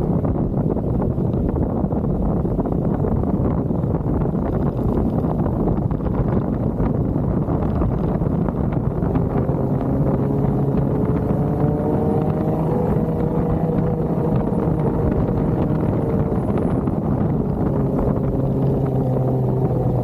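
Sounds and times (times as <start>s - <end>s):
engine running under load: 7.4s - 20.0s.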